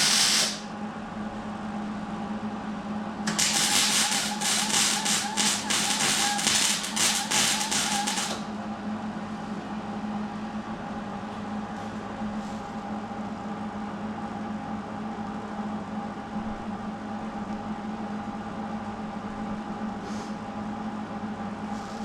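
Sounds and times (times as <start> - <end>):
arc welding crackling: 0.0 - 0.7, 3.3 - 8.5
machine hum: 0.0 - 22.0.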